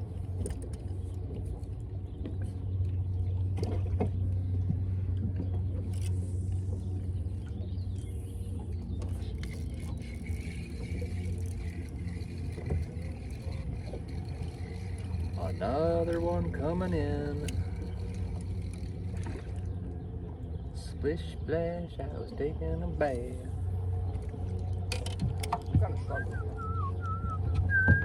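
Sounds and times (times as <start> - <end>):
boat motor humming: 0.0 - 28.0
small clicks and knocks: 24.1 - 25.9.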